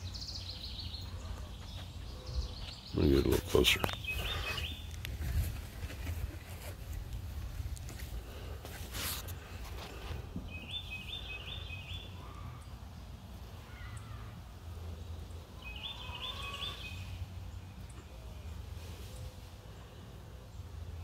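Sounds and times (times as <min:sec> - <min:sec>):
songbird singing repeated notes: 0:00.0 - 0:05.0, 0:10.4 - 0:12.8, 0:15.0 - 0:18.6.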